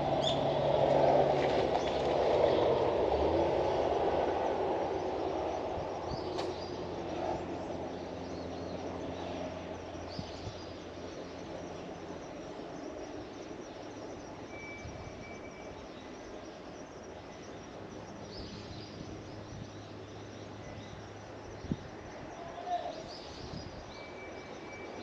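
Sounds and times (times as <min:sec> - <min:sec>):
distant passing vehicle rumble: 0:00.0 - 0:12.9.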